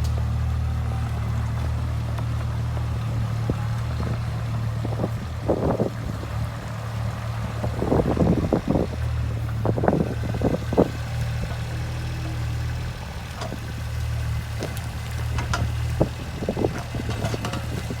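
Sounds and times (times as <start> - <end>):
excavator diesel engine running: 0.0 - 18.0
excavator digging knocks and clatter: 9.5 - 18.0.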